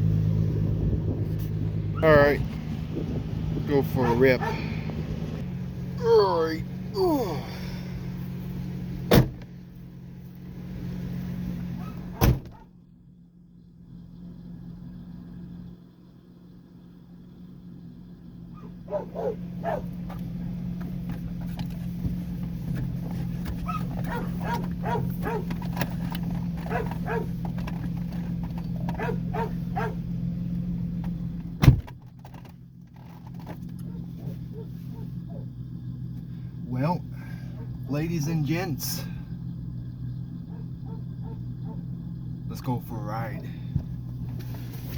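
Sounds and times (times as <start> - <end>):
truck engine idling: 0.0 - 44.9
sharp thunks: 9.0 - 9.6, 11.8 - 12.7, 31.0 - 34.0, 43.6 - 44.9.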